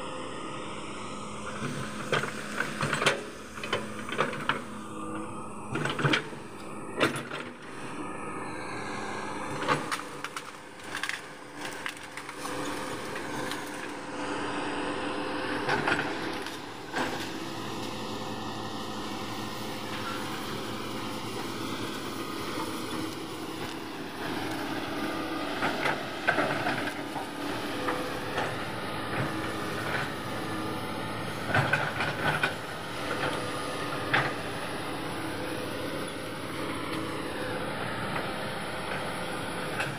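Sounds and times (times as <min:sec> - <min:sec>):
excavator diesel engine running: 0:00.0 - 0:39.9
trees and branches snapping: 0:09.7 - 0:14.0.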